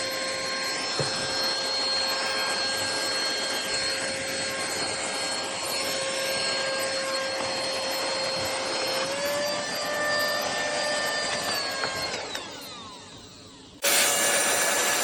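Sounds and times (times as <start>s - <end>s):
handheld vacuum cleaner whine: 0.0s - 15.0s.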